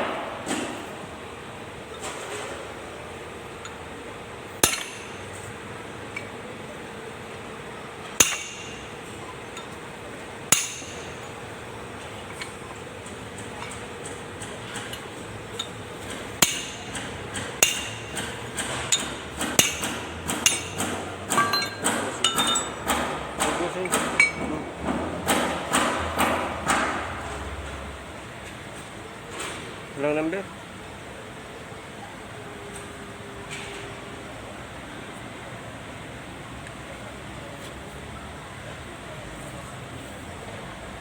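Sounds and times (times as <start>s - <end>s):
hammer striking metal: 0.0s - 1.1s, 4.6s - 5.5s, 8.1s - 9.8s, 10.5s - 11.6s, 12.3s - 27.1s.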